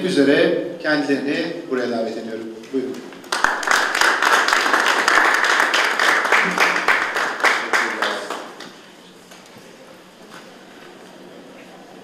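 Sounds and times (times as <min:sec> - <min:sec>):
audience applauding: 0:03.2 - 0:08.8.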